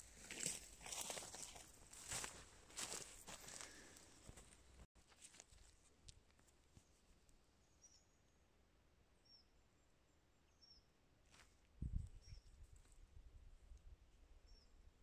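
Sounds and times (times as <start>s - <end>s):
faint high bird chirps: 7.6s - 8.5s, 9.2s - 11.0s, 12.1s - 12.6s, 14.4s - 14.9s.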